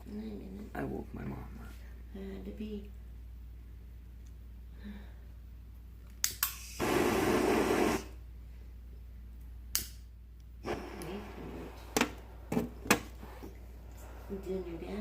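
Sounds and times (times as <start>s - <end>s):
torch lighter clicking: 6.2s - 6.9s, 9.7s - 10.0s
flame hissing: 6.4s - 8.2s, 10.6s - 15.0s.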